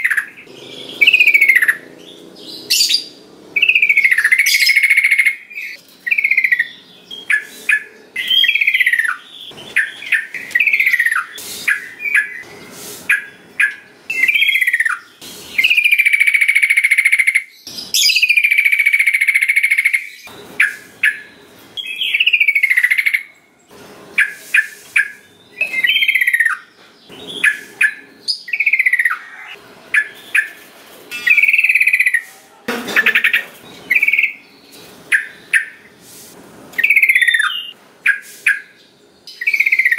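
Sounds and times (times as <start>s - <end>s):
bird singing whistled phrases: 13.1s - 17.4s, 36.8s - 38.7s.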